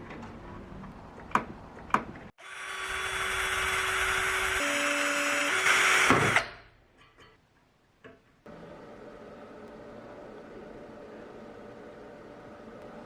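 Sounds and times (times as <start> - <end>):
electric power tool running: 2.4 - 6.4.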